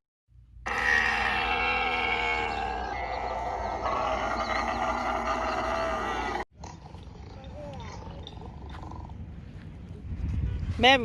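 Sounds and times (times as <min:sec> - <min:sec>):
animals crying out: 0:00.6 - 0:06.5.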